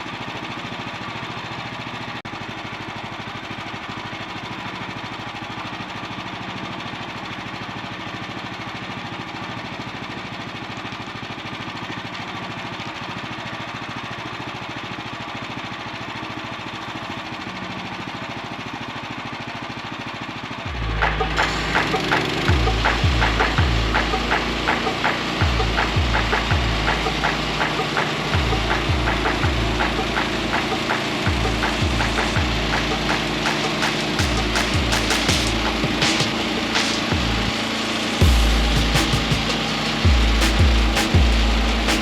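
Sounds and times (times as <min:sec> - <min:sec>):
small gasoline engine running: 0:00.0 - 0:42.0
music with strong beat: 0:20.7 - 0:42.0.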